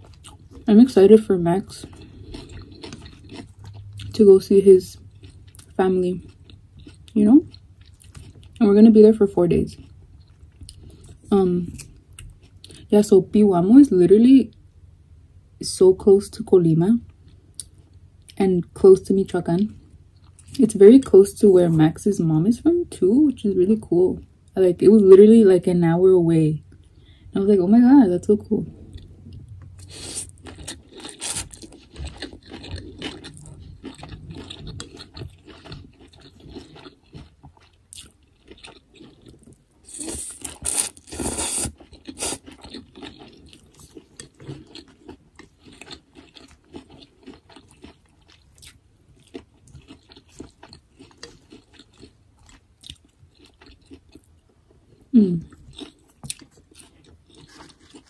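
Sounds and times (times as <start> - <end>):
person chewing and crunching food: 0.0 - 8.7, 9.5 - 12.9, 28.7 - 58.0.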